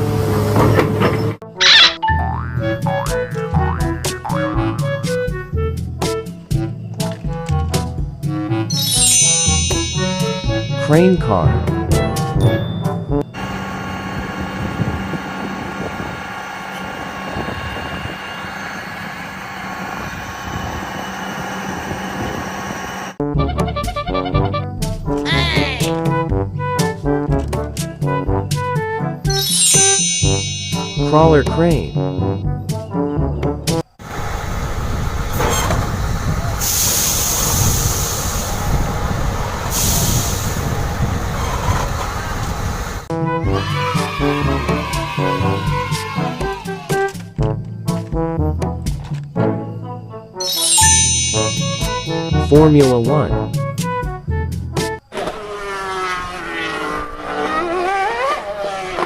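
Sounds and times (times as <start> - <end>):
bouncy music: 1.5 - 13.2, 23.2 - 33.7, 50.4 - 55.0
engine drone with whine: 13.2 - 23.2, 34.0 - 43.1, 55.1 - 59.0
loud air hiss: 36.6 - 38.9, 39.7 - 40.9.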